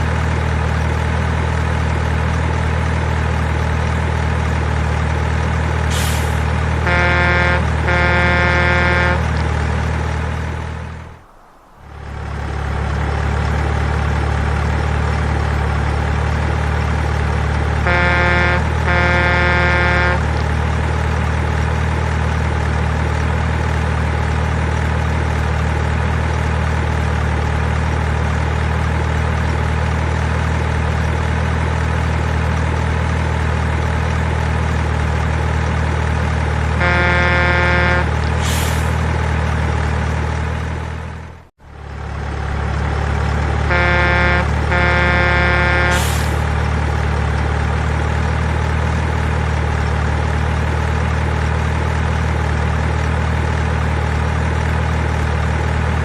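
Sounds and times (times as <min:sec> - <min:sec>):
diesel truck engine idle: 0:00.0 - 0:56.0
truck horn: 0:05.9 - 0:13.4, 0:17.0 - 0:20.8, 0:36.6 - 0:39.2, 0:43.4 - 0:46.9
high rising sound: 0:10.0 - 0:13.6.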